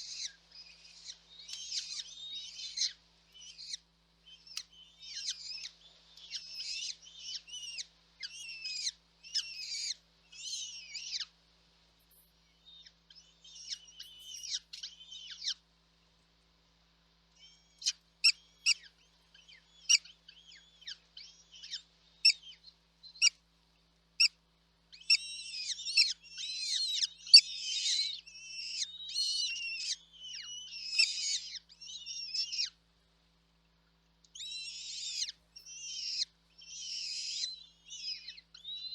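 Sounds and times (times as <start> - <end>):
nestling birds begging calls: 0.0 - 11.3, 12.6 - 15.6, 17.4 - 23.4, 24.9 - 32.8, 34.3 - 38.9
sharp bird chirps: 34.4 - 38.9.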